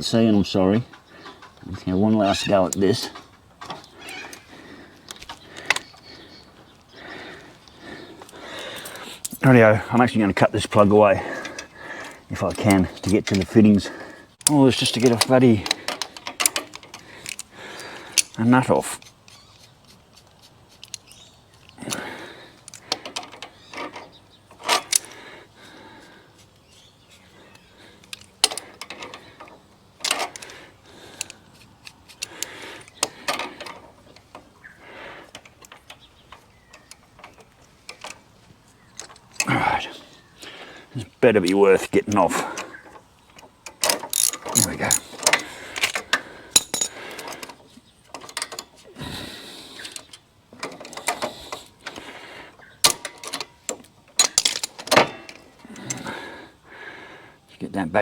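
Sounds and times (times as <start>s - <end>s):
hand tools clinking on metal: 8.2s - 38.3s, 41.2s - 49.0s, 52.8s - 56.3s.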